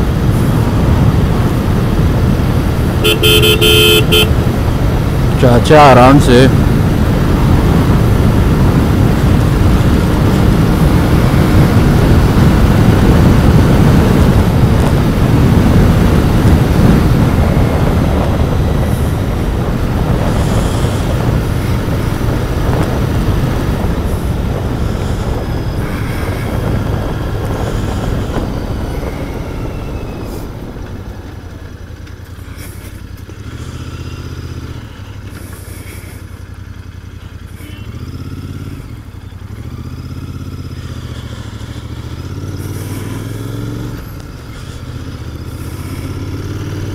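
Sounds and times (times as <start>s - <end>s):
motorcycle engine running hard: 0.0s - 46.9s
motorcycle throttle blips: 0.5s - 5.0s, 6.9s - 46.9s.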